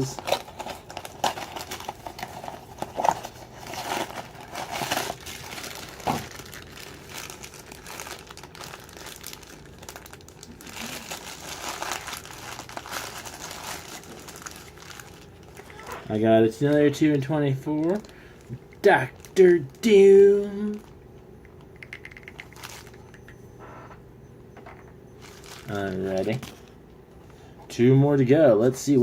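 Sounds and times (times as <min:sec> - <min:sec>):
plastic bag crinkling and rustling: 0:00.0 - 0:21.0, 0:21.6 - 0:23.2, 0:25.2 - 0:26.8.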